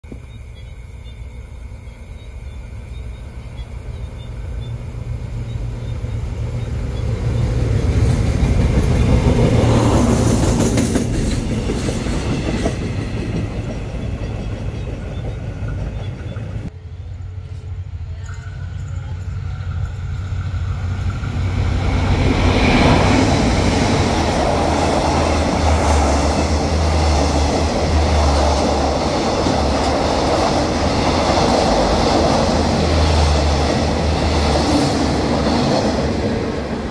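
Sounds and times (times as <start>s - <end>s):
train passing on rails: 0.0s - 36.9s
train coaches rolling past: 0.1s - 36.9s.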